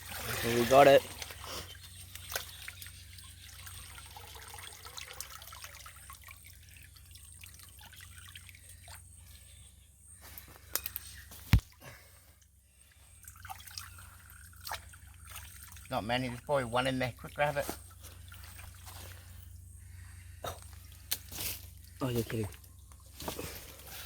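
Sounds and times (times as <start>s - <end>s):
water dripping and trickling: 0.0s - 9.4s, 12.4s - 19.8s.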